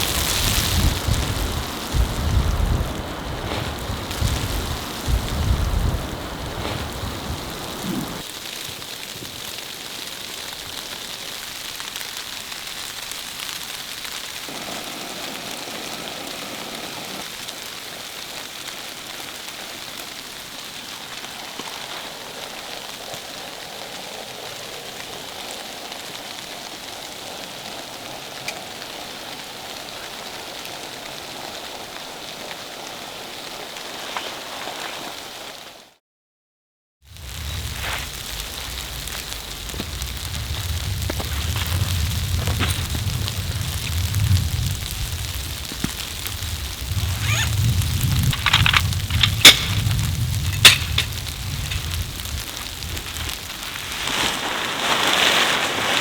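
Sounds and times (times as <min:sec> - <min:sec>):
steady rain falling: 0:00.0 - 0:36.0, 0:37.1 - 0:56.0.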